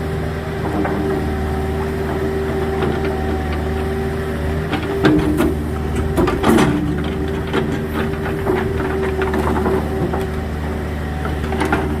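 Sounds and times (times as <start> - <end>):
engine idling: 0.0 - 12.0
knocks and clatter: 0.6 - 12.0.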